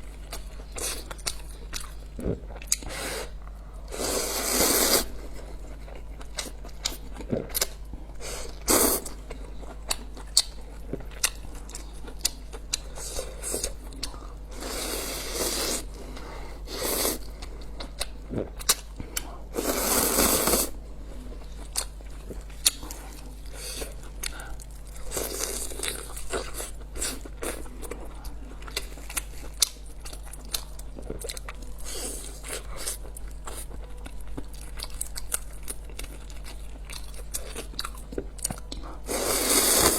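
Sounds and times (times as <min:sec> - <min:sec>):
crunchy chewing: 0:21.4 - 0:39.9.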